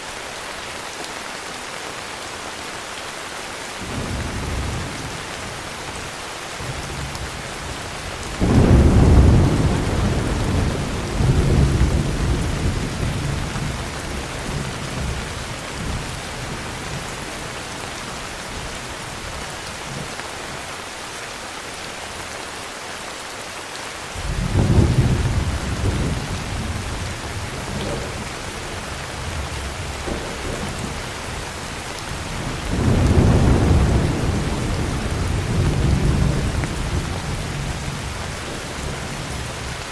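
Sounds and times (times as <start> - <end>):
heavy rain: 0.0 - 39.9
thunder rumbling: 6.6 - 20.1, 24.2 - 39.8.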